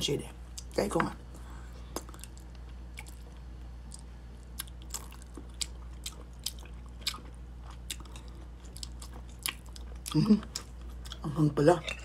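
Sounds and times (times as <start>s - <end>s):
chewing and wet mouth smacks: 2.0s - 11.2s.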